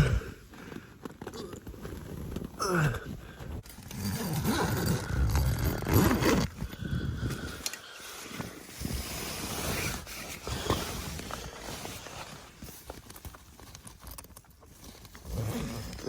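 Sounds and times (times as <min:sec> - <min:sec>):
tent fabric rustling and scraping: 0:03.6 - 0:16.0.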